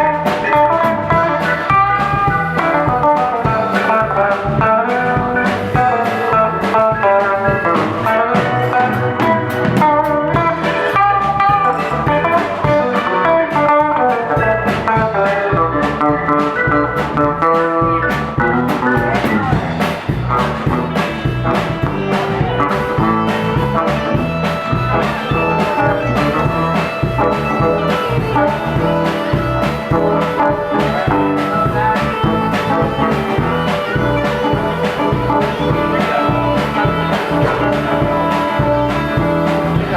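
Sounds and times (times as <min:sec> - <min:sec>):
drums and bass: 0:00.0 - 0:39.9
electric guitar lead lines: 0:00.0 - 0:39.9.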